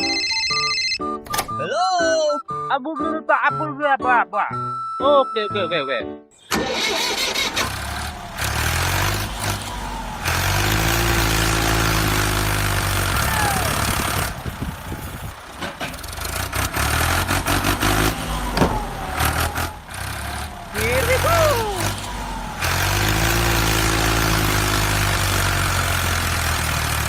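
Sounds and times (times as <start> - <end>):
small truck engine running: 6.4 - 27.0.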